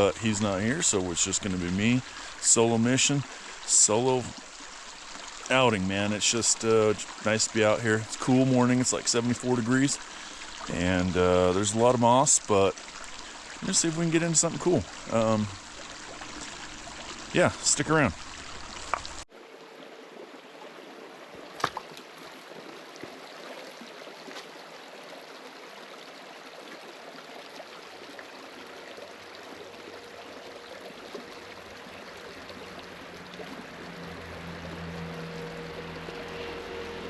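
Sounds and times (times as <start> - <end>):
creek trickling over stones: 0.0 - 37.0
low hum: 30.0 - 37.0.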